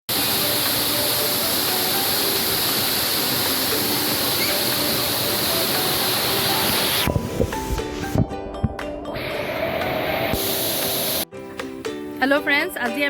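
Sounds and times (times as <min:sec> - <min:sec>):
waterfall rushing: 0:00.1 - 0:08.2, 0:09.2 - 0:11.2.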